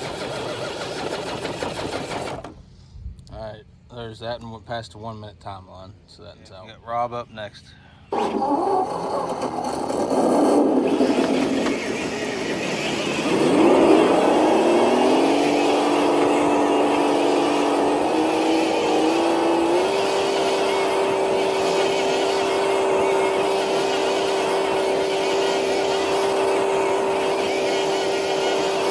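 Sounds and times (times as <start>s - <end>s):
electric motor whining: 8.1s - 28.9s.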